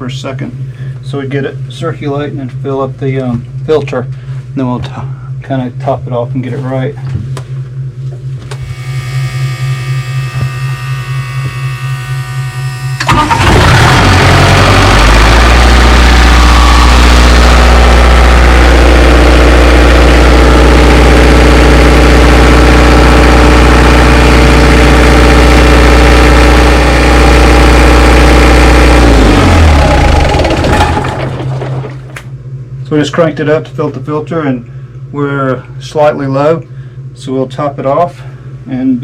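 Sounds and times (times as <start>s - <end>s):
engine cranking and running: 13.0s - 32.2s.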